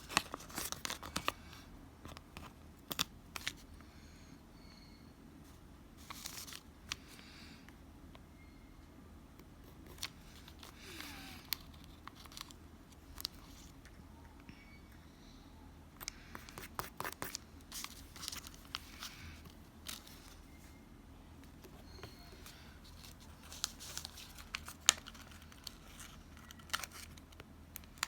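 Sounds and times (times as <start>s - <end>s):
paper and stickers rustling: 0.0s - 3.7s, 6.0s - 7.1s, 9.7s - 13.8s, 16.2s - 20.7s, 21.5s - 28.0s.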